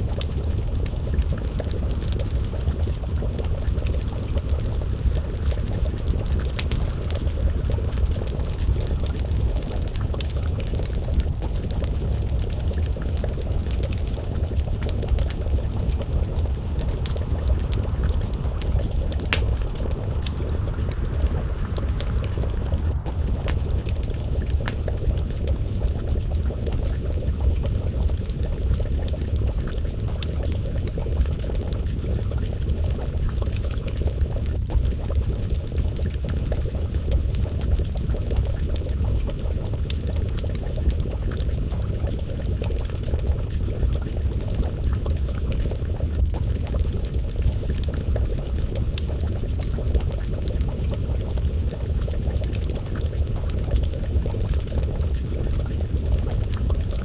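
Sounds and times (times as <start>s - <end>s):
stew bubbling in a pot: 0.0s - 57.0s
wood fire crackling: 0.0s - 57.0s.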